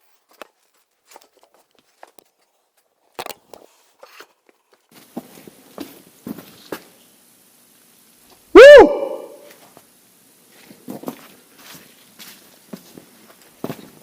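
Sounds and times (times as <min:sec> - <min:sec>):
faint hiss: 0:03.5 - 0:14.0.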